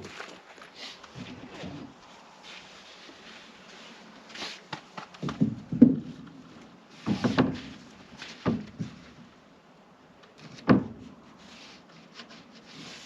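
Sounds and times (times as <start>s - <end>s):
construction knocks and thuds: 4.7s - 9.4s, 10.4s - 11.1s.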